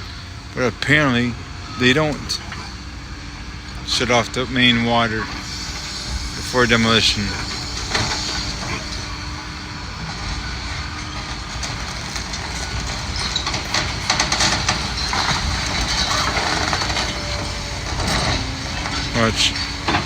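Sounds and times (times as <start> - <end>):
diesel engine running: 0.0 - 20.0
debris clattering and crunching: 6.4 - 20.0.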